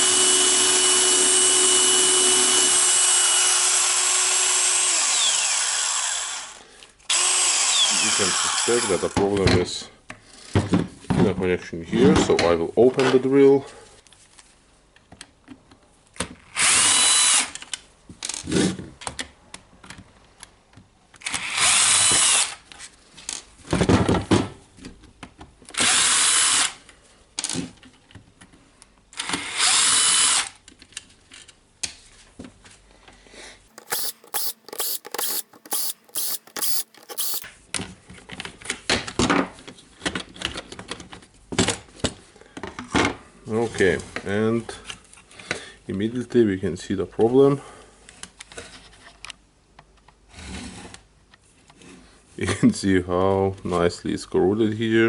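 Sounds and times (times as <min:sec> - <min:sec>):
clicks and rattles of parts: 0:33.7 - 0:37.5
power screwdriver spinning: 0:33.7 - 0:37.5.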